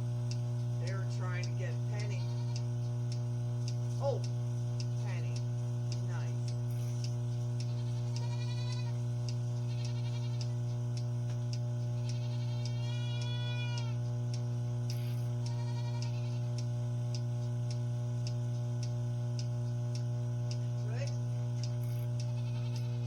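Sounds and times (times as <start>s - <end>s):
low electrical hum: 0.0s - 23.0s
regular ticking: 0.1s - 23.0s
goats bleating: 2.0s - 2.7s, 6.8s - 10.6s, 12.0s - 14.0s, 15.4s - 16.6s, 22.2s - 23.0s.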